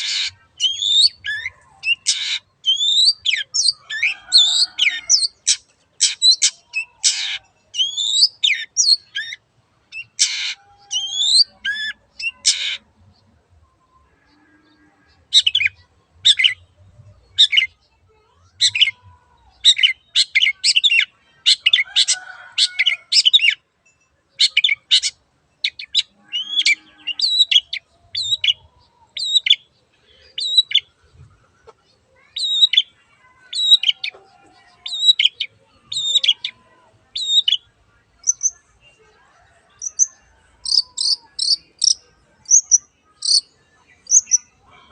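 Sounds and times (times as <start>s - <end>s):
shrike singing: 37.2s - 38.7s, 39.7s - 44.5s.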